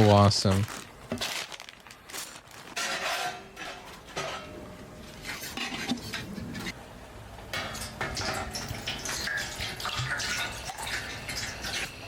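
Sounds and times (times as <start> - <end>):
dishes and cutlery clinking: 2.7 - 4.6, 7.5 - 10.5.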